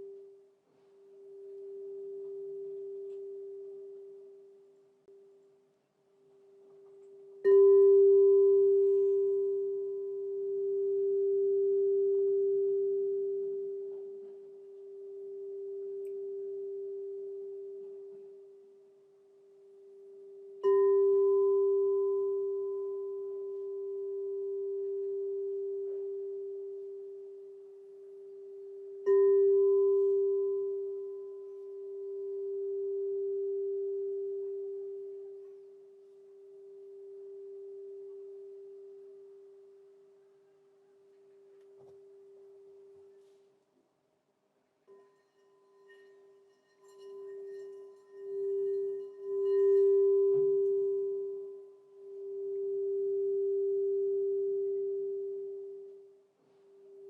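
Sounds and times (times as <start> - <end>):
singing bowl ringing: 1.2 - 4.6, 6.9 - 40.2, 44.9 - 57.0.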